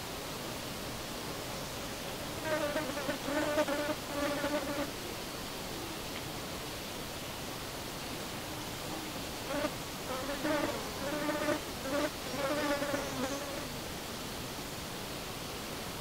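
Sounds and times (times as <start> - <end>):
background hiss: 0.0 - 16.0
flying insect buzzing: 2.4 - 4.9, 9.4 - 13.8.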